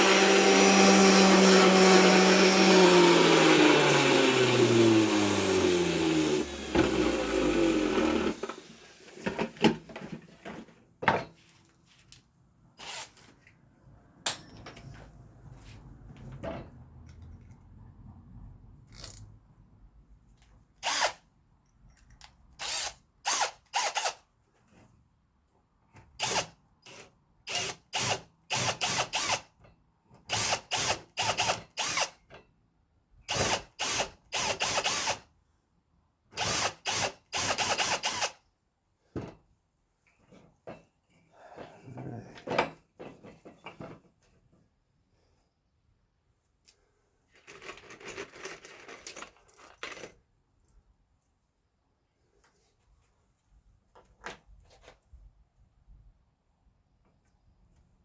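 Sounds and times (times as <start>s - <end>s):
power tool motor winding down: 0.0s - 9.0s.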